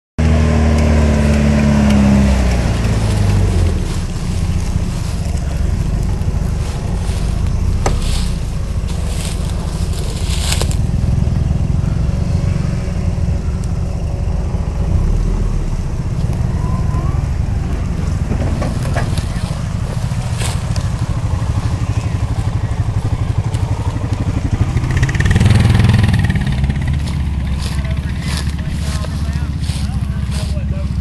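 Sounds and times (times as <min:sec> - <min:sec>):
off-road vehicle engine rumble: 0:00.2 - 0:31.0
crunching and scraping: 0:00.8 - 0:11.7, 0:17.6 - 0:31.0.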